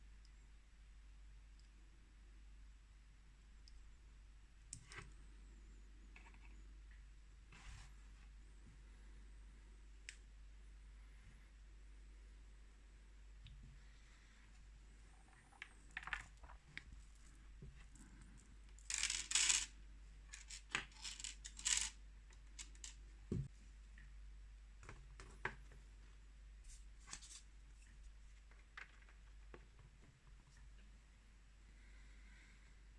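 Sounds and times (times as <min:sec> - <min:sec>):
plastic blocks clattering: 0:18.8 - 0:19.7, 0:20.3 - 0:22.0
plastic building blocks clicking: 0:18.8 - 0:19.7, 0:20.3 - 0:23.0.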